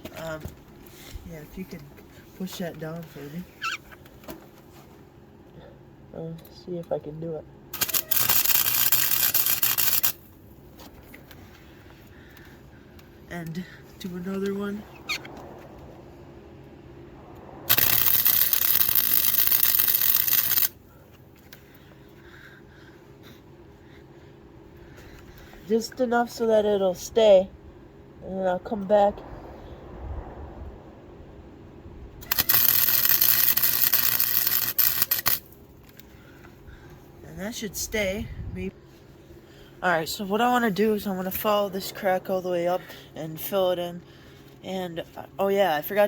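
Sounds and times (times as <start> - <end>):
low hum: 7.5 - 43.1
welder arc crackling: 7.8 - 10.4, 17.7 - 20.8, 32.2 - 35.6.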